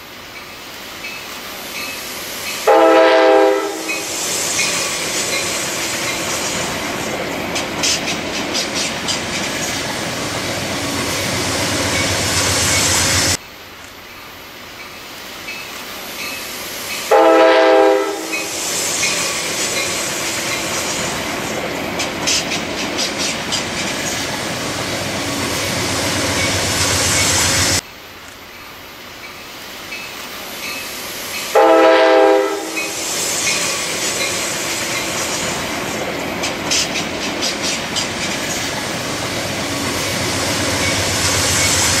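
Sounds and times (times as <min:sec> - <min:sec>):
train rushing past: 0:00.4 - 0:13.4, 0:15.4 - 0:27.8, 0:29.4 - 0:42.0
train chord horn blast: 0:02.7 - 0:04.1, 0:17.1 - 0:18.5, 0:31.5 - 0:33.0.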